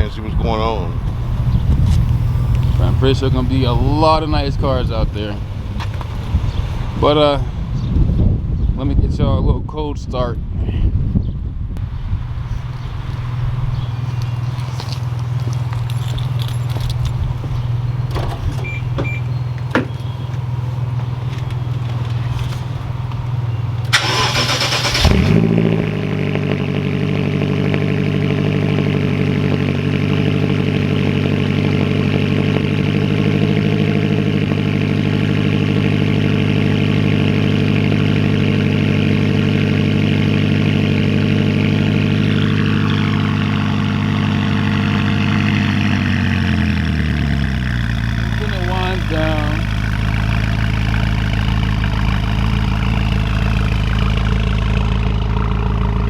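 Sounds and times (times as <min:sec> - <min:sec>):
car engine idling: 0:00.0 - 0:07.9, 0:11.8 - 0:56.0
starter cranking: 0:23.8 - 0:25.4.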